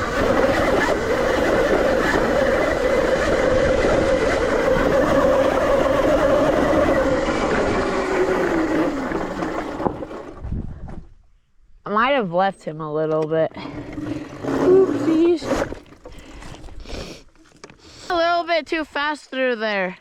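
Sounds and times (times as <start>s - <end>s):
electric motor whine: 0.0s - 10.4s
tyres on dirt: 0.0s - 11.1s, 13.1s - 19.5s
wind noise: 0.0s - 11.8s.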